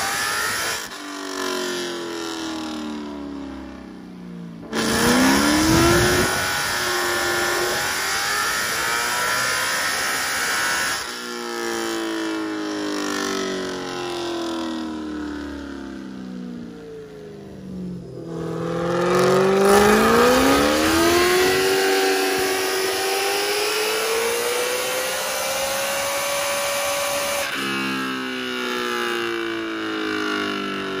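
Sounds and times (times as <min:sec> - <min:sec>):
dyno rollers coasting: 0:04.6 - 0:08.8
race car engine revving: 0:04.6 - 0:11.1, 0:17.8 - 0:27.8.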